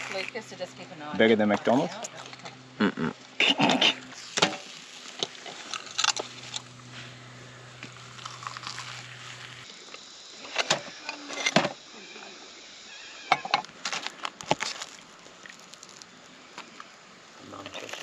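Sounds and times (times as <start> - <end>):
low steady hum: 0.0 - 18.0
person biting and chewing: 7.8 - 9.7, 14.4 - 16.0.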